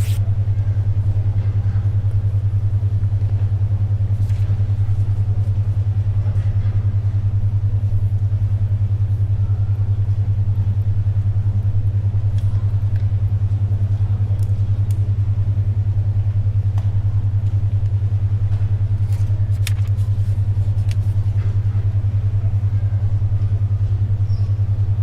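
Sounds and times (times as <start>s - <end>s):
paper rustling: 0.0s - 0.2s, 19.0s - 21.6s
pencil scratching: 0.0s - 0.2s
pulsing low hum tone: 0.0s - 25.0s.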